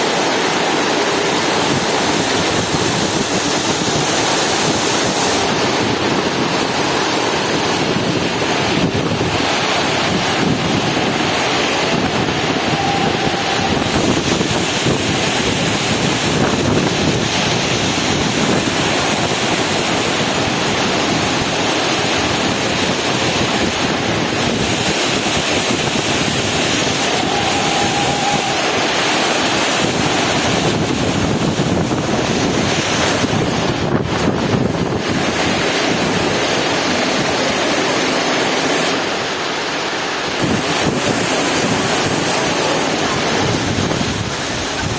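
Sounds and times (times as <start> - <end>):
heavy rain hissing: 0.0 - 44.9
wind buffeting microphone: 1.3 - 37.8, 40.3 - 44.9.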